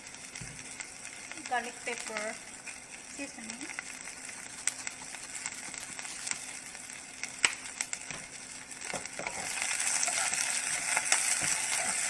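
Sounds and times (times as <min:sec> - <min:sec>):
vegetables sizzling in a pan: 0:00.0 - 0:12.0
wooden spoon stirring vegetables: 0:08.9 - 0:12.0.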